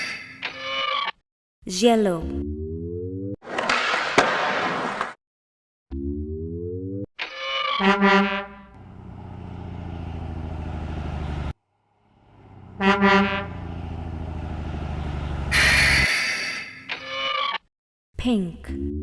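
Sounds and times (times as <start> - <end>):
truck horn honking: 7.8 - 10.6, 12.2 - 16.1
truck engine running: 8.7 - 16.0.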